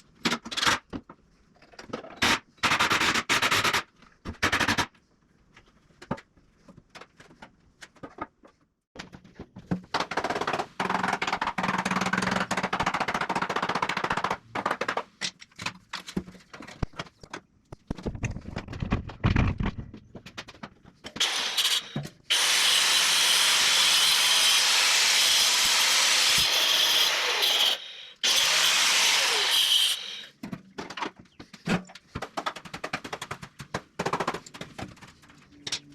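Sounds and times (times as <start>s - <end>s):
power tool cutting lumber: 21.2s - 30.3s.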